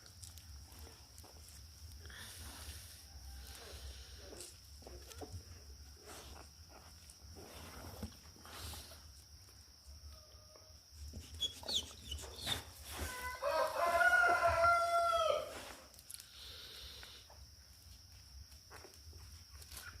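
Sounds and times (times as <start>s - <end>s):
rooster crowing: 12.9s - 15.7s.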